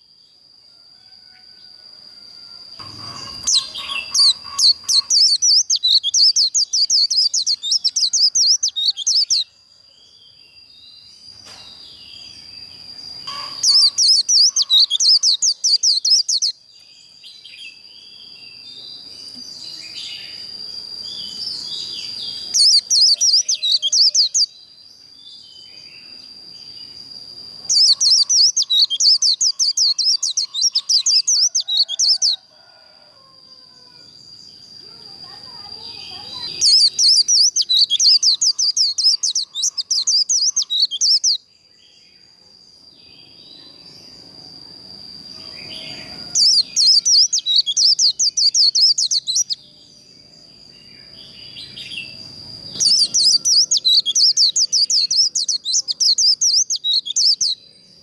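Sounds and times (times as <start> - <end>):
bird warbling: 2.8 - 9.4, 13.2 - 16.5, 27.7 - 32.4, 35.5 - 41.4, 52.7 - 57.6.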